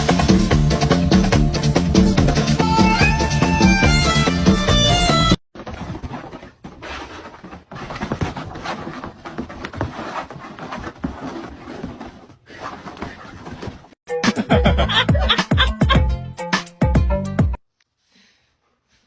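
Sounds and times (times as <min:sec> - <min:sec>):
soft knocks and rustles: 0:05.6 - 0:14.0.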